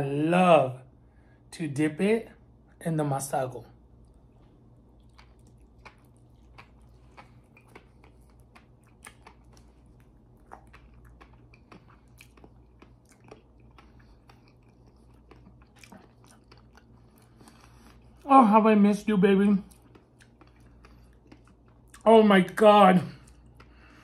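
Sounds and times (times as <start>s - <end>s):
low steady hum: 0.0s - 24.0s
close chewing of raw fish: 4.0s - 18.3s, 19.6s - 22.1s
wet mouth clicks and smacks: 5.0s - 16.8s.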